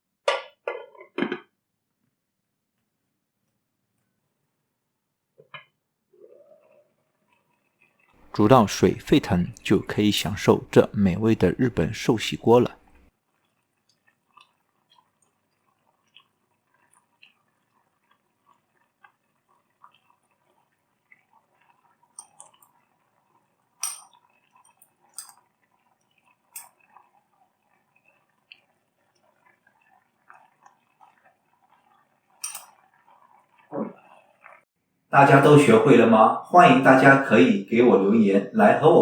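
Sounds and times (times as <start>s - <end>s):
faint small ticks: 12.9s - 23.2s, 23.8s - 33.7s
utensils clinking on dishes: 22.1s - 22.8s, 23.8s - 25.5s, 32.4s - 32.8s.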